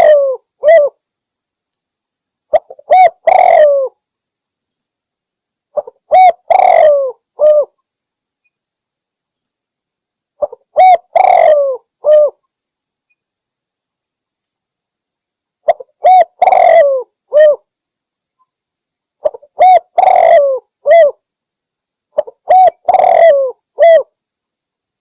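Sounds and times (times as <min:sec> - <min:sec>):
dove cooing: 0:00.0 - 0:01.0, 0:02.5 - 0:04.0, 0:05.8 - 0:07.8, 0:10.4 - 0:12.4, 0:15.7 - 0:17.7, 0:19.2 - 0:21.2, 0:22.2 - 0:24.1.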